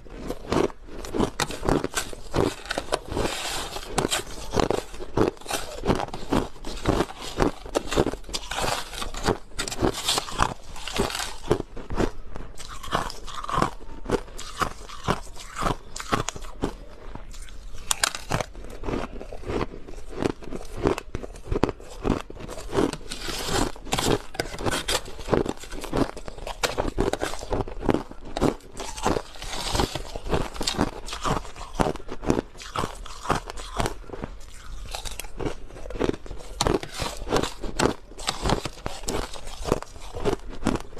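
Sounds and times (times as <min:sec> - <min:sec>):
person chewing crushed ice: 0:00.0 - 0:40.9.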